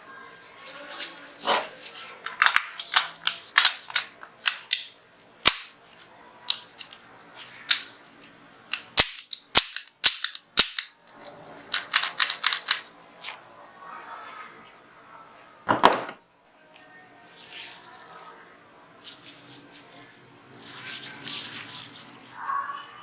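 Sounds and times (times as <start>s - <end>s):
pistol slide clicks and snaps: 2.4s - 5.8s, 7.7s - 7.9s, 8.7s - 10.9s.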